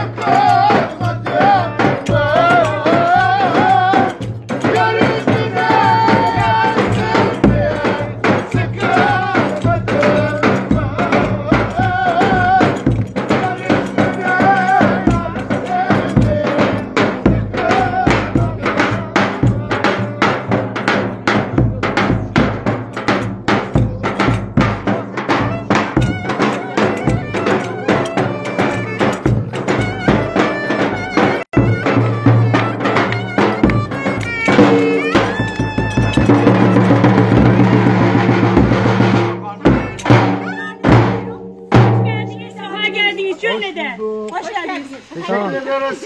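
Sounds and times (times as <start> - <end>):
drum and tambourine beat: 0.0 - 45.8
ornamented melody: 22.2 - 45.5.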